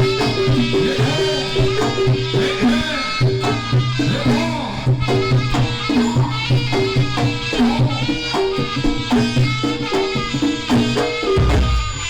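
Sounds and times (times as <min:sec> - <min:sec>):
gamelan music: 0:00.0 - 0:04.2, 0:05.0 - 0:12.0
deep heavy drum stroke: 0:11.4 - 0:12.0.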